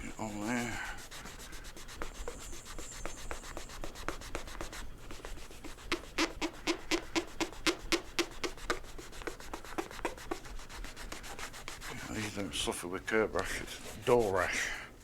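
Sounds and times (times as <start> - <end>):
hand scrubbing on plastic: 0.0 - 15.0.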